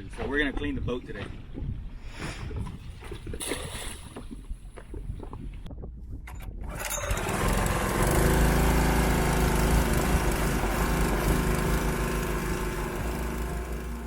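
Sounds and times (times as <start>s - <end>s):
small gasoline engine running: 6.7s - 14.0s.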